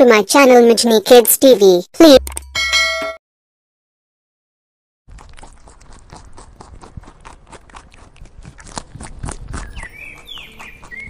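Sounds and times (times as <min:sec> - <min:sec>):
rabbit crunching a carrot: 0:05.1 - 0:11.0
small bird chirping: 0:09.4 - 0:11.0.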